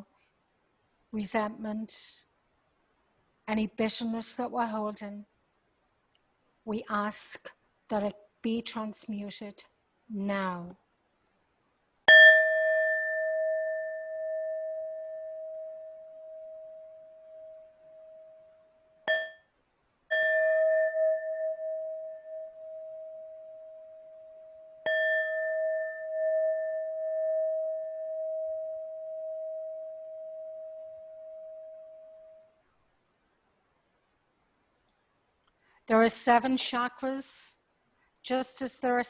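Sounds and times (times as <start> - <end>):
singing bowl ringing: 12.1 - 32.6.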